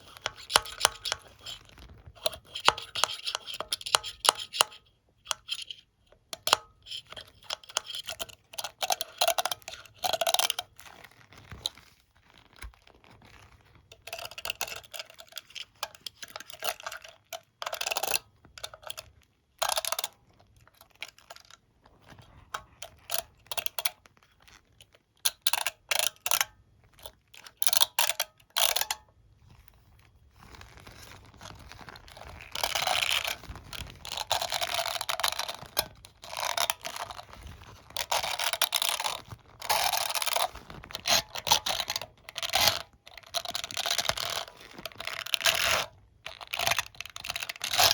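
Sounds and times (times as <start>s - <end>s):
comb and hairbrush scratching: 0.0s - 4.7s, 30.4s - 45.8s.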